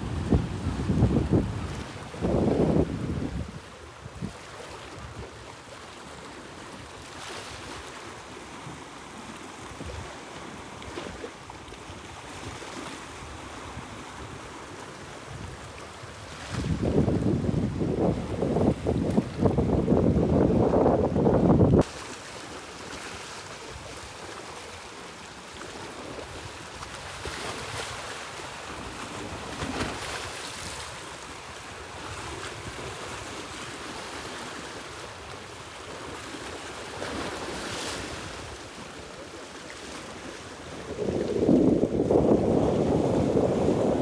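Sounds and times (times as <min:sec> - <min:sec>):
sea wind: 0:00.0 - 0:44.0
sea waves washing on shore: 0:21.7 - 0:44.0.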